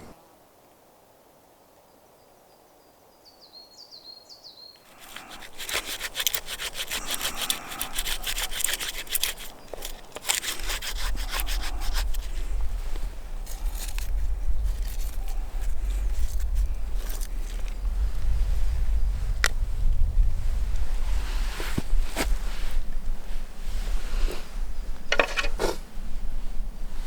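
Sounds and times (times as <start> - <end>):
saw cutting through wood: 4.9 - 12.4.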